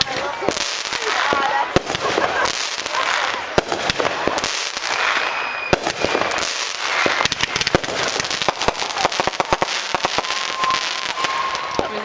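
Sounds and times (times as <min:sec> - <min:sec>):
fireworks bangs and crackling: 0:00.0 - 0:12.0
firework whistle: 0:04.2 - 0:12.0.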